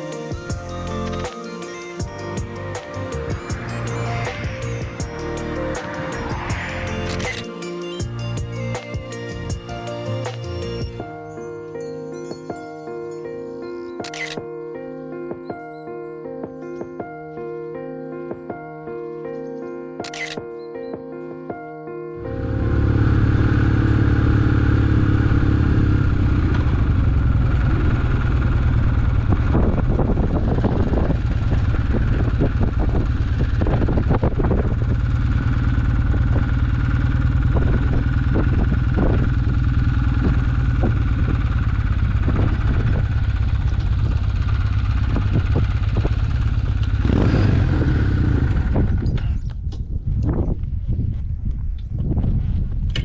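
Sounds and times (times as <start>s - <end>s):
motorcycle engine running: 2.0s - 7.4s, 22.2s - 49.5s
wind noise: 25.0s - 53.0s.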